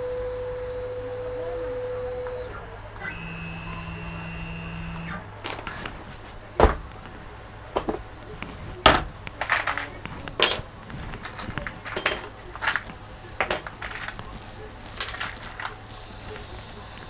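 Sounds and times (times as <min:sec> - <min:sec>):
small hard objects clicking and knocking: 0:09.3 - 0:17.0
light metallic clinks: 0:09.4 - 0:16.6.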